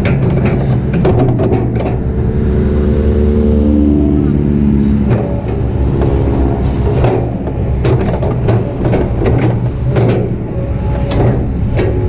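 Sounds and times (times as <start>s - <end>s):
excavator diesel engine running: 0.0s - 12.0s
clanks and squeaks from boom: 4.9s - 12.0s.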